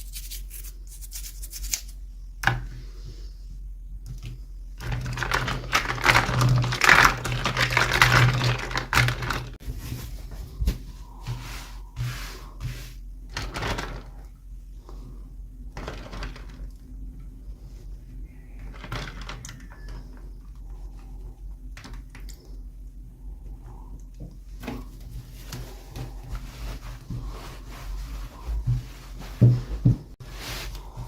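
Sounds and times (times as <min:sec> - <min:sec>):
faint steady hum: 0:00.0 - 0:31.0
hands handling toy packaging: 0:04.8 - 0:10.1.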